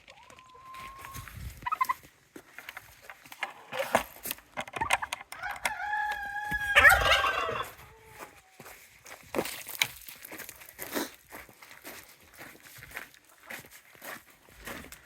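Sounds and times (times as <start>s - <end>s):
turkey gobbling: 0.1s - 2.0s, 5.4s - 8.5s
rooster crowing: 5.3s - 8.4s.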